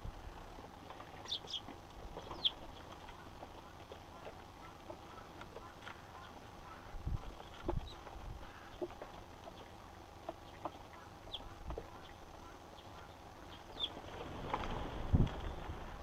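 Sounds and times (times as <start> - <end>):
sparrow chirps: 1.2 - 2.8, 10.5 - 14.0.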